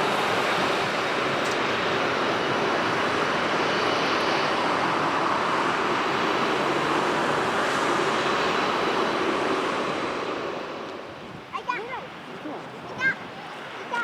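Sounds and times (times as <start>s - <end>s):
jet engines roaring: 0.0s - 14.0s.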